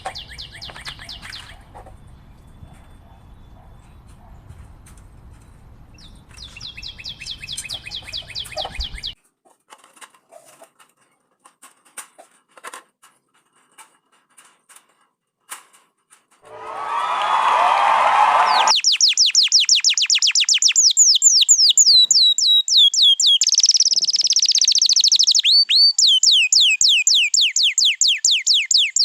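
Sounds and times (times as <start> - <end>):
bird chirps and clicks: 0.0 - 9.2, 18.6 - 29.0
canary singing trill: 0.0 - 9.2, 18.5 - 29.0.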